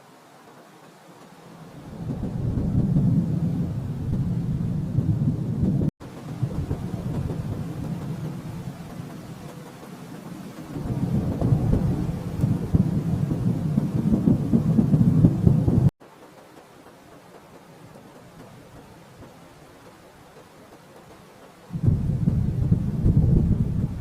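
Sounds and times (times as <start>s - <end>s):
low rolling thunder: 1.7s - 15.9s, 21.7s - 24.0s.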